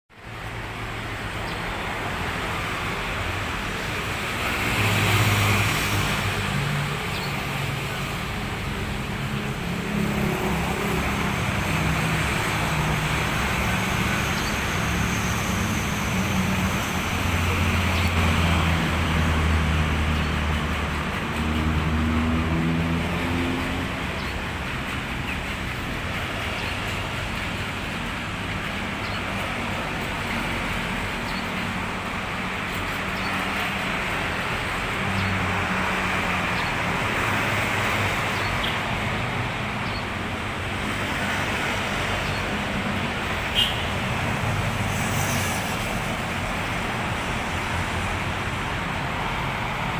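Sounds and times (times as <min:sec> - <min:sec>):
road traffic passing: 0:00.1 - 0:49.9
sparrow chirps: 0:39.8 - 0:40.1.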